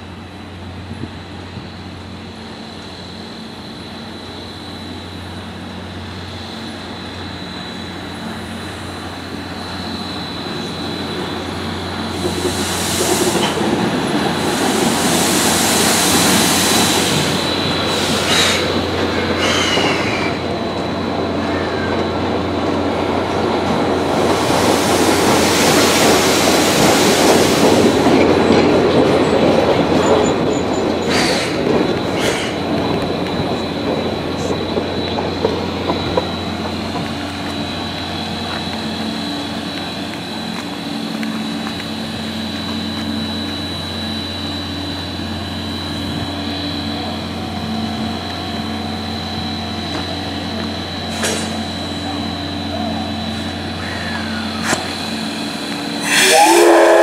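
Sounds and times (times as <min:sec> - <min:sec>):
electric train running in: 0:00.0 - 0:57.0
steam locomotive: 0:00.0 - 0:57.0
steam hissing: 0:06.1 - 0:21.4, 0:23.8 - 0:28.5, 0:30.4 - 0:57.0.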